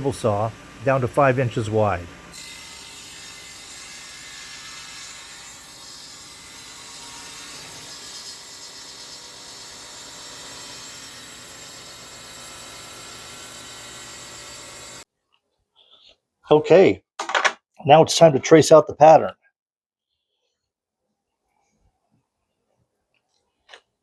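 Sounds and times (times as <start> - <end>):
table saw ripping wood: 2.3 - 15.0.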